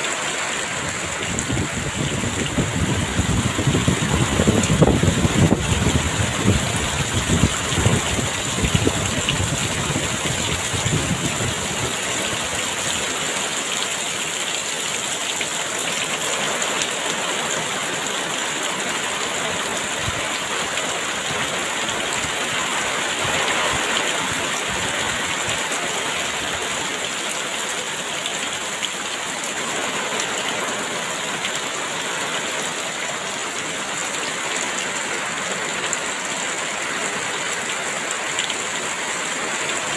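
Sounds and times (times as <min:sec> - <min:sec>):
heavy rain pouring: 0:00.0 - 0:39.9
strong wind gusts: 0:00.8 - 0:12.6.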